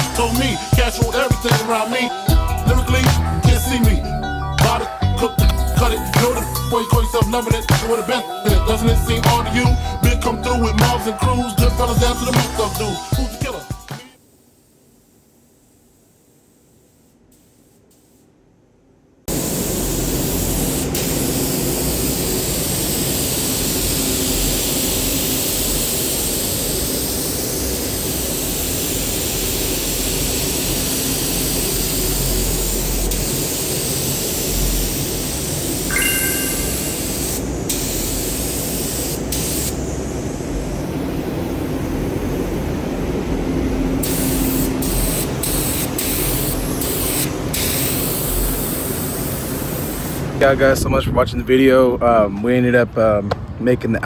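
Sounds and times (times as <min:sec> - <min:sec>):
paint spray gun hissing: 0:00.0 - 0:03.7, 0:19.3 - 0:41.5, 0:44.0 - 0:50.3.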